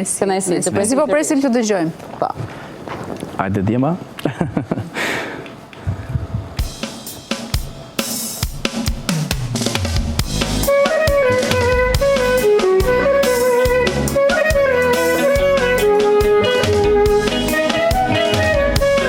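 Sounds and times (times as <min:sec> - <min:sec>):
drum hits: 0:05.9 - 0:19.0
live band playing folk-pop: 0:09.5 - 0:19.0
keyboard chords: 0:10.2 - 0:19.0.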